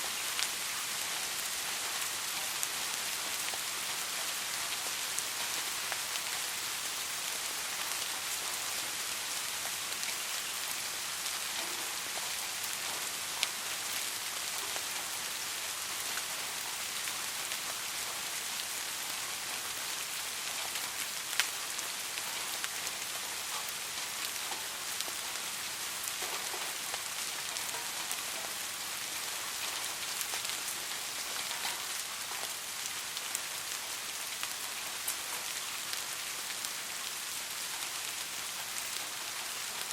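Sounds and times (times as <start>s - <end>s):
soft rain falling: 0.0s - 39.9s.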